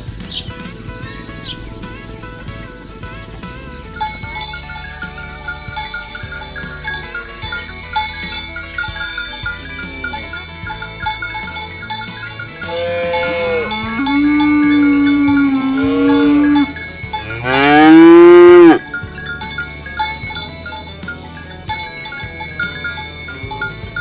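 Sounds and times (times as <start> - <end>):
bells tinkling: 0.0 - 24.0
cattle mooing: 12.4 - 18.8.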